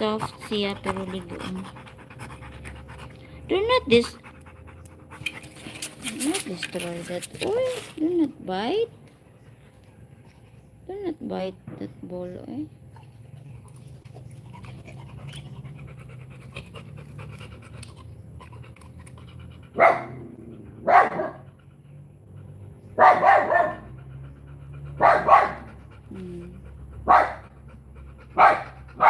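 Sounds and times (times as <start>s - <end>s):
dog panting: 0.0s - 10.8s, 12.9s - 29.0s
dog barking loudly: 19.8s - 21.5s, 23.0s - 23.9s, 24.9s - 25.7s, 27.0s - 27.4s, 28.4s - 29.0s.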